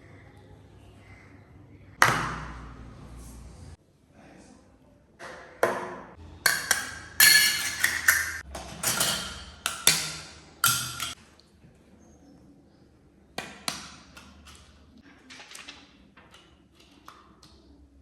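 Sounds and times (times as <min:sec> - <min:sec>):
hard objects knocking and clicking: 0:05.3 - 0:11.2.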